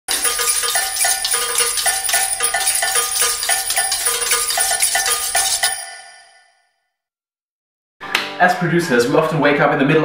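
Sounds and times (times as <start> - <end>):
bright high-pitched percussion: 0.1 - 6.6.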